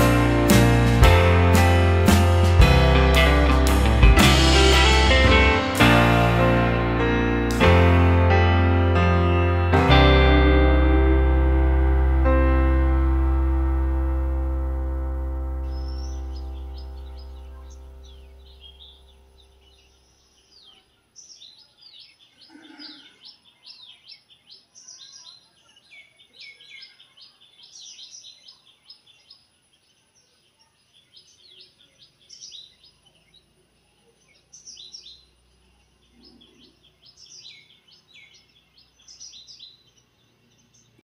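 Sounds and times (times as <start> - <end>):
small birds chirping: 15.6 - 41.0.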